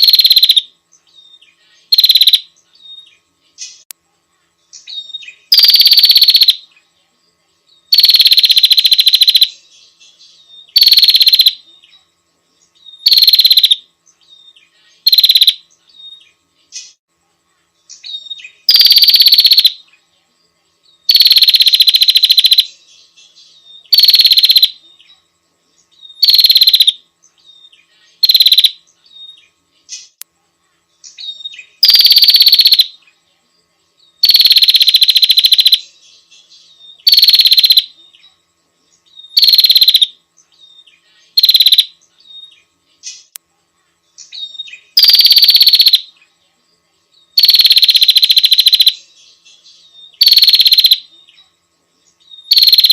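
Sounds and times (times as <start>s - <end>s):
bird giving harsh buzzy calls: 0.0s - 0.7s, 1.8s - 2.5s, 4.9s - 6.6s, 7.9s - 9.6s, 10.7s - 11.6s, 13.0s - 13.9s, 14.9s - 15.7s, 18.1s - 19.8s, 21.1s - 22.8s, 23.9s - 24.8s, 26.1s - 27.0s, 28.1s - 28.8s, 31.2s - 33.0s, 34.2s - 35.9s, 37.0s - 38.0s, 39.3s - 40.2s, 41.3s - 41.9s, 44.4s - 46.1s, 47.4s - 49.1s, 50.2s - 51.1s, 52.5s - 52.9s.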